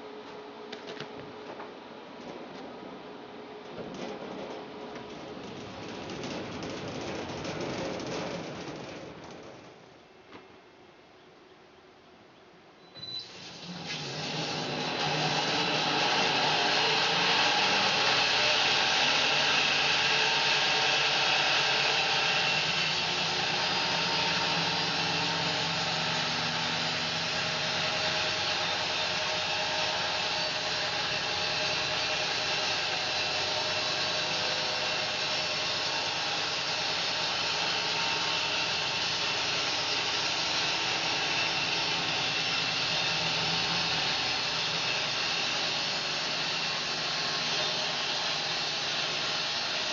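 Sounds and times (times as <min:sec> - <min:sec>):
bandsaw sawing through log: 0:14.4 - 0:49.9.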